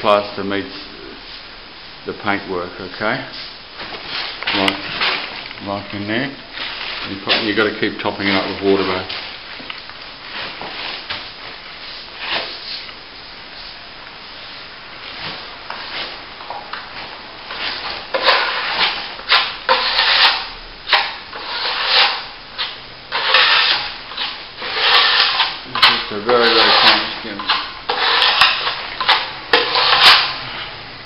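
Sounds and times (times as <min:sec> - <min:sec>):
trowel scraping wet plaster: 0:17.5 - 0:30.4.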